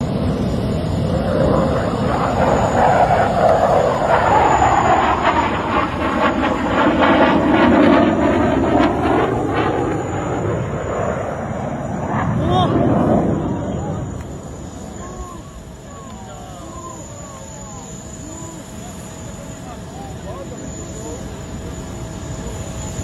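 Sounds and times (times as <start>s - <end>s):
fighter jet flying past: 0.0s - 23.0s.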